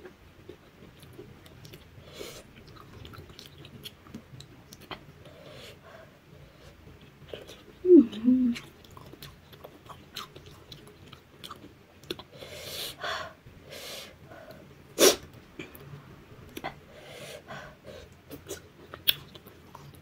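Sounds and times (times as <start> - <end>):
person humming: 7.8 - 8.6.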